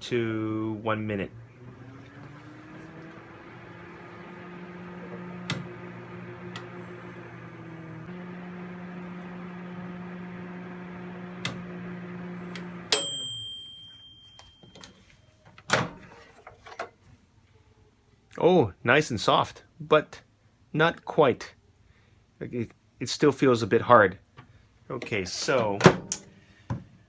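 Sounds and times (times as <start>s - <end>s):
microwave oven humming: 0.5s - 14.9s
microwave ding: 11.3s - 15.0s.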